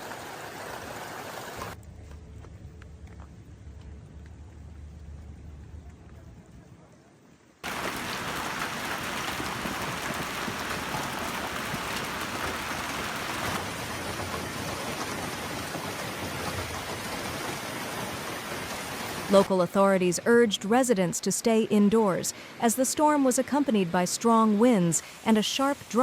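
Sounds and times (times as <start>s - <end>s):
low faint hum: 1.8s - 6.9s
hail pelting down: 7.6s - 15.7s.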